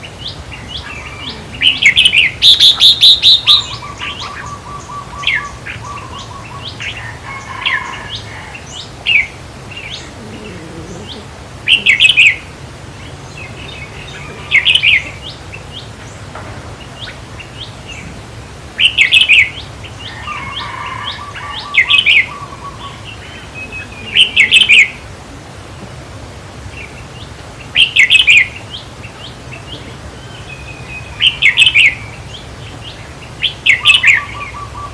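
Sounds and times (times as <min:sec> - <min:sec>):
softer chattering calls: 0:00.0 - 0:18.2, 0:18.8 - 0:25.2
bulbuls singing: 0:00.0 - 0:34.9.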